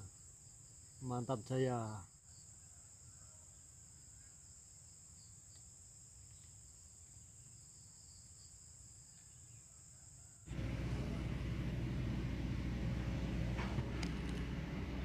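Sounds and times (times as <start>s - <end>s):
high-pitched insect chorus: 0.0s - 10.5s
faint low rumble: 10.5s - 15.0s.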